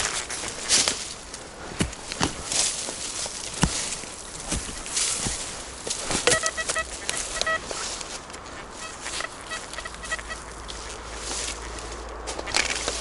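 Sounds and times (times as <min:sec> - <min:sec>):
rustling: 0:00.0 - 0:13.0
metal detector warble: 0:06.2 - 0:07.8.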